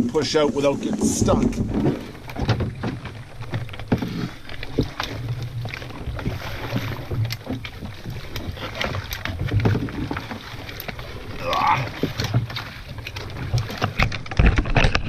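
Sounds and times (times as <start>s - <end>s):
low rumble: 0.0s - 3.5s
branches scraping against boat: 0.0s - 15.0s
sharp clicks and knocks: 13.1s - 15.0s.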